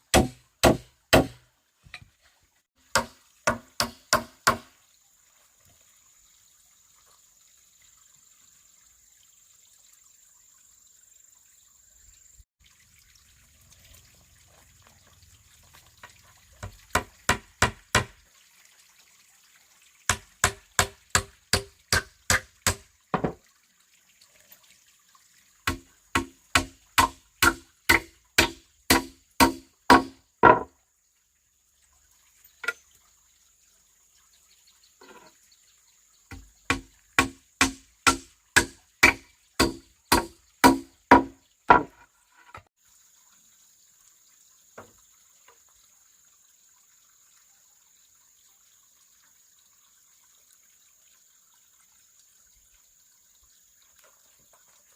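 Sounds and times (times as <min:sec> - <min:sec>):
tool striking bamboo: 0:00.1 - 0:02.1, 0:02.9 - 0:04.7, 0:16.9 - 0:18.2, 0:20.1 - 0:23.4, 0:25.6 - 0:30.7, 0:36.3 - 0:42.0.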